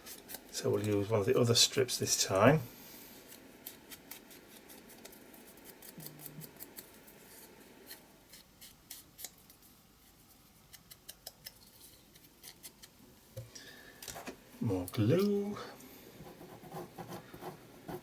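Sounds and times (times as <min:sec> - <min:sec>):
scissors snipping paper: 0:00.0 - 0:01.1, 0:03.3 - 0:09.6.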